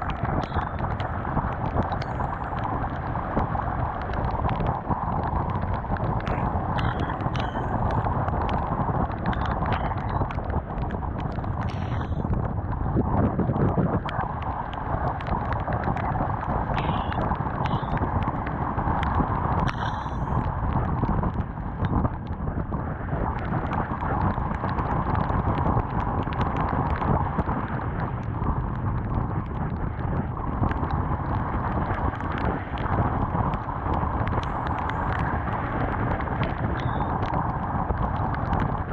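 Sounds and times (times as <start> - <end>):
wind rushing over camera: 0.0 - 38.9
small sharp ticks: 13.6 - 22.4, 23.4 - 38.9.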